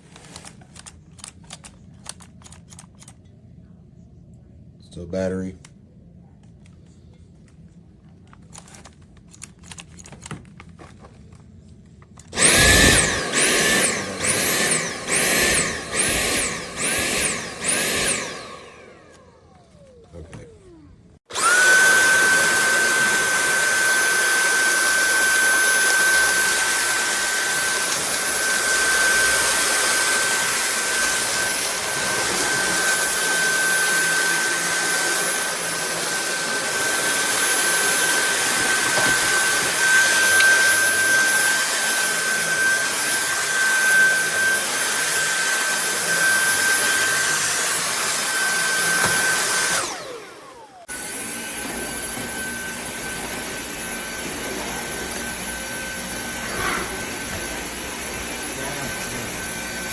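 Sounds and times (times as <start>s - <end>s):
vacuum cleaner running: 12.2s - 59.9s.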